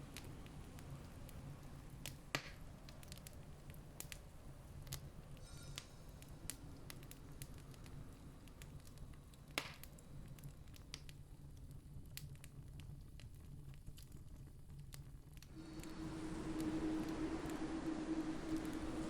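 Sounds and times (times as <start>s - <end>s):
campfire crackling and popping: 0.0s - 16.0s
low steady rumble: 15.4s - 19.0s.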